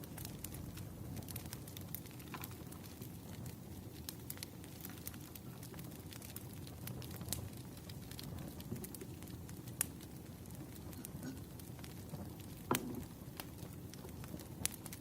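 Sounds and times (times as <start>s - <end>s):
low rumble of flames: 0.0s - 15.0s
wood fire crackling: 0.0s - 15.0s.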